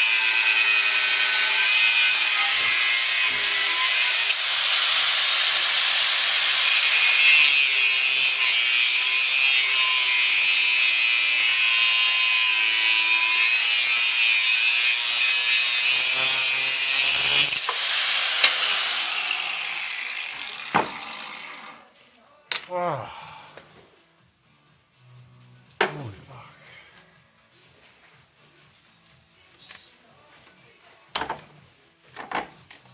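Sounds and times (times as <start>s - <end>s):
angle grinder cutting steel: 0.0s - 21.8s.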